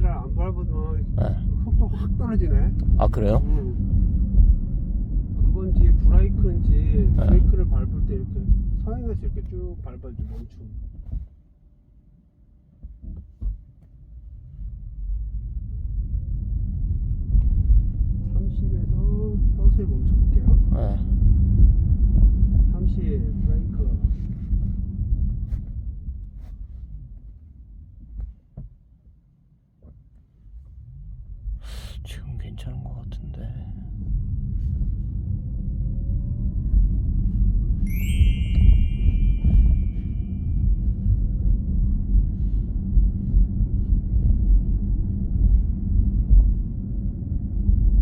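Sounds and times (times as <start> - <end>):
car cabin road rumble: 0.0 - 11.5, 12.8 - 28.9.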